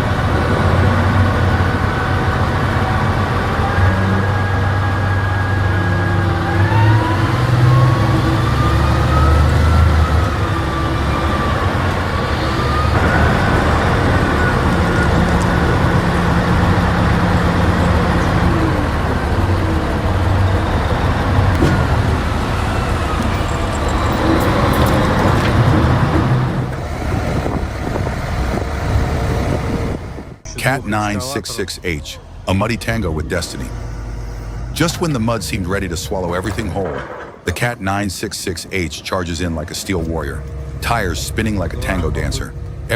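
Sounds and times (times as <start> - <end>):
diesel engine running under load: 0.0 - 42.9
whine rising and falling in pitch: 26.7 - 36.5.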